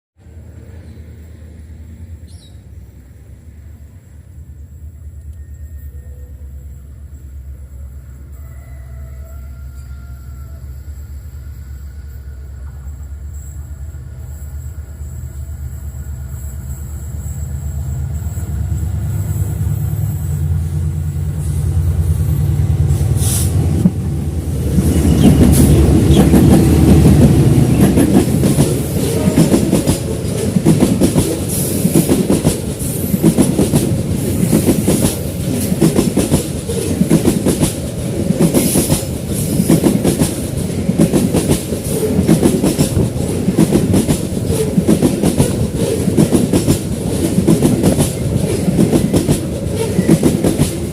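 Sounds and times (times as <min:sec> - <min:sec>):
diesel locomotive engine rumbling: 0:00.2 - 0:50.9
train wheels clickety-clack: 0:20.7 - 0:50.9.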